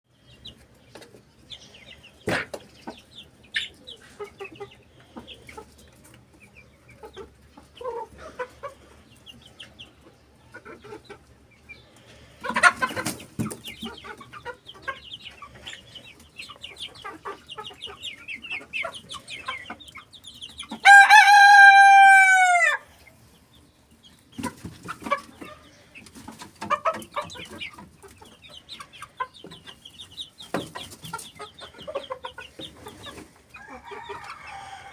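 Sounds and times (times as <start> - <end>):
fowl clucking and chirping: 0.1 - 34.9
cockerel crowing: 20.8 - 22.9, 33.6 - 34.9.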